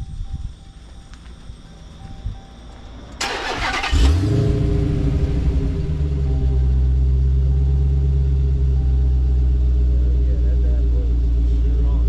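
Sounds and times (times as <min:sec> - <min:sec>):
car engine starting and idling: 0:01.4 - 0:12.0
car starter cranking: 0:03.1 - 0:08.6.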